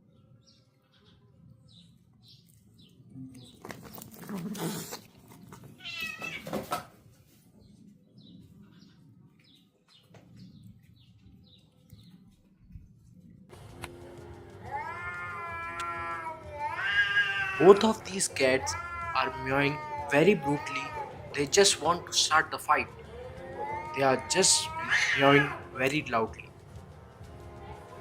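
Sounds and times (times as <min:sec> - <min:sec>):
cats growling meows: 0:03.9 - 0:06.8, 0:14.3 - 0:25.8
cats yowling: 0:05.6 - 0:06.7, 0:14.3 - 0:26.5.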